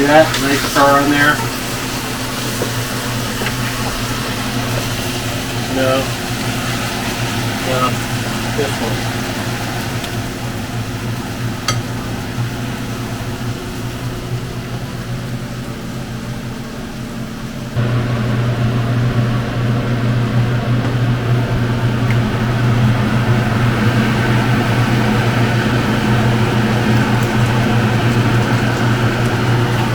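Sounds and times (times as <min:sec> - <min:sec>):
fan-like mechanical hum: 0:00.0 - 0:29.9.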